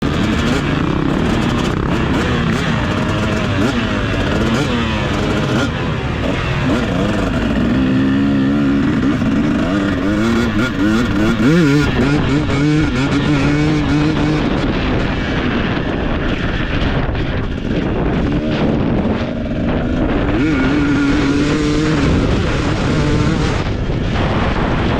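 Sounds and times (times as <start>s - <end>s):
motocross bike engine revving: 0.0s - 24.9s.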